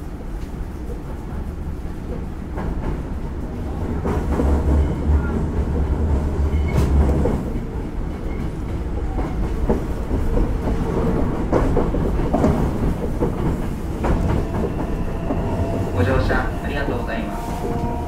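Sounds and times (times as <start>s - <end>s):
electric train rumbling: 0.0s - 18.0s
heavy low rumble: 12.6s - 18.0s.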